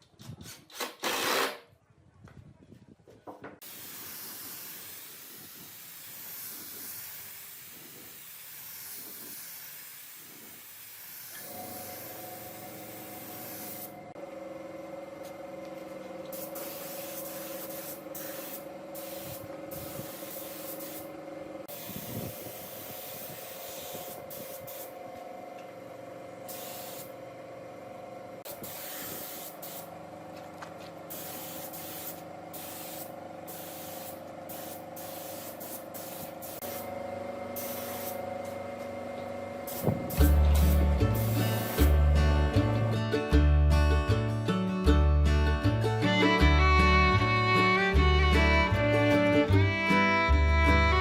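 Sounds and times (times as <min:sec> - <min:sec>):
spraying hiss bursts: 0:03.6 - 0:14.0, 0:16.3 - 0:21.1, 0:21.7 - 0:25.0, 0:26.4 - 0:27.1, 0:28.5 - 0:29.9, 0:31.1 - 0:38.3, 0:39.6 - 0:42.0
steady hum: 0:35.7 - 0:43.4.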